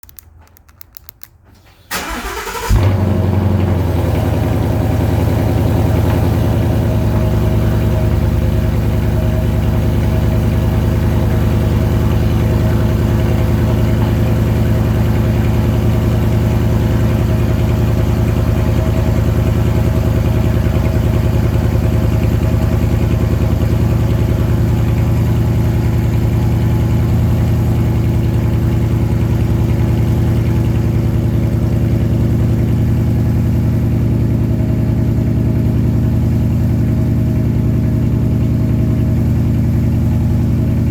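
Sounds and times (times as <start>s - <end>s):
car engine cranking: 0.0s - 7.9s
car engine starting and idling: 0.0s - 40.9s.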